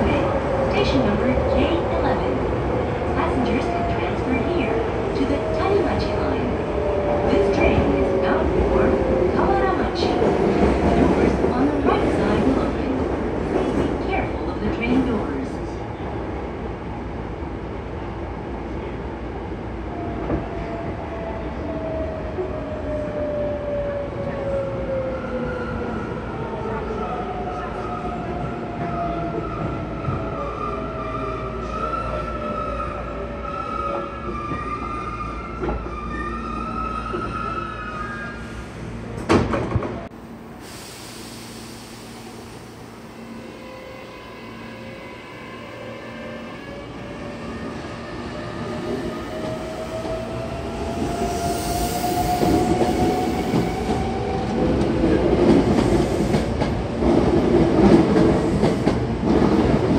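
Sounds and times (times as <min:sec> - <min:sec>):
train wheels rumbling on rail: 0:37.0 - 0:59.9
hissing air burst: 0:40.6 - 0:42.6.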